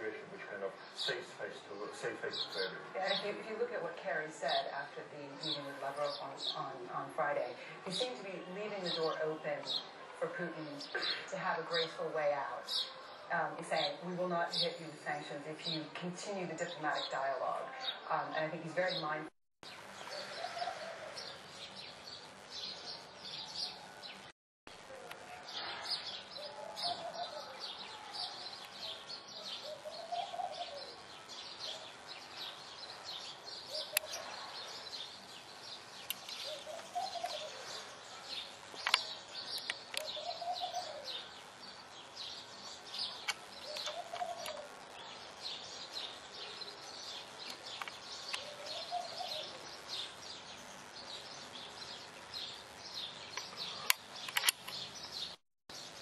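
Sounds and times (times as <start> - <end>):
small birds chirping: 0.0 - 56.0
dove cooing: 20.1 - 21.4, 26.4 - 27.8, 28.7 - 31.0, 33.7 - 34.4, 36.3 - 37.9, 40.0 - 41.3, 43.6 - 44.8, 48.4 - 49.6
sharp clicks: 33.9 - 34.2, 36.0 - 37.4, 38.7 - 40.2, 43.2 - 44.8, 47.4 - 48.5, 53.3 - 55.2.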